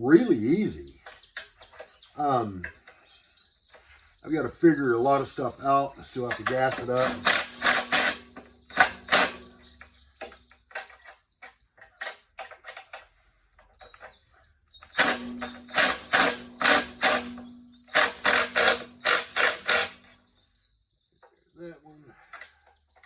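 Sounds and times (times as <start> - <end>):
ratchet wrench clicking: 6.5 - 9.4, 15.0 - 20.1.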